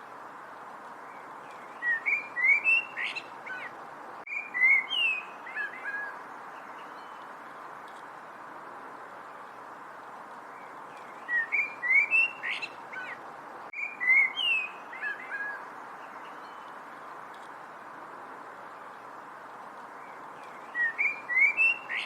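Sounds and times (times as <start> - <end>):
steady background hiss: 0.0 - 22.0
songbird whistling: 1.7 - 3.7, 4.3 - 6.1, 11.2 - 13.2, 13.8 - 15.6, 20.6 - 22.0.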